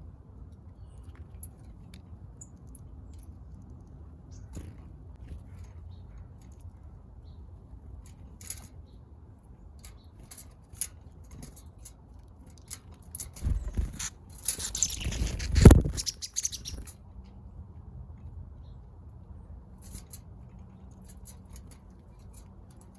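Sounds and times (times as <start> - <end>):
birds wings flapping: 13.4 - 16.9.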